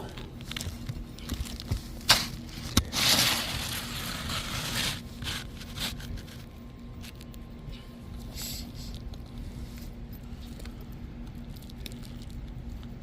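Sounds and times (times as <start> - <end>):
shingles scraping and rustling: 1.4 - 6.5.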